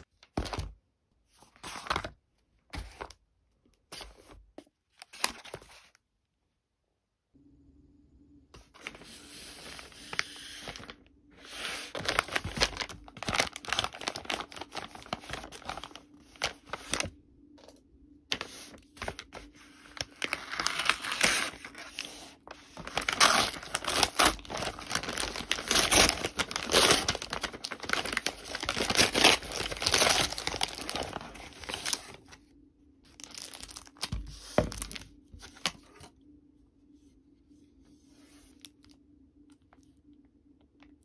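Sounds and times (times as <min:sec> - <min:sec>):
packaging tearing and crinkling: 0:09.6 - 0:17.0, 0:19.0 - 0:32.2, 0:33.2 - 0:35.0.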